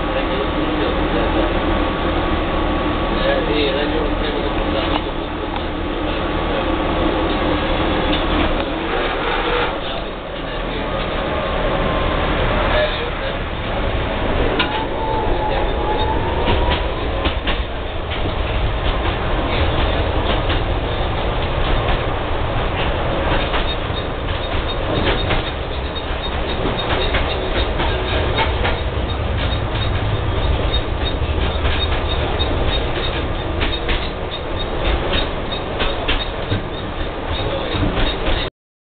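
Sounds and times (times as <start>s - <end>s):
tram rumbling on track: 0.0s - 38.5s
wheels clicking and rattling: 16.0s - 38.5s.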